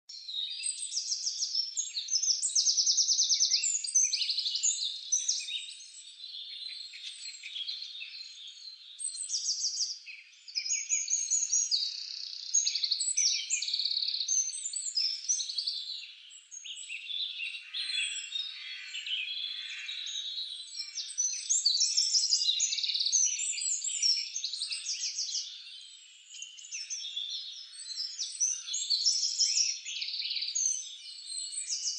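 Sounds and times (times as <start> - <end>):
songbirds chirping and trilling: 0.1 - 31.9.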